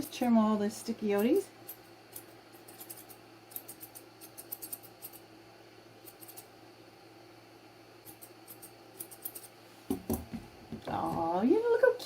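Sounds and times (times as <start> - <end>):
scissors snipping hair: 1.2 - 5.2, 6.0 - 6.5, 8.0 - 9.6.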